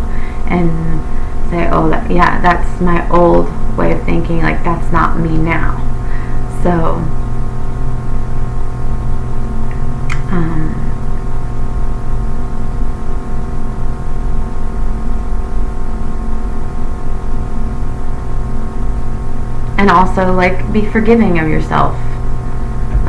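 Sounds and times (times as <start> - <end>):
steady tonal hum: 0.0 - 23.0
person murmuring: 10.3 - 11.0.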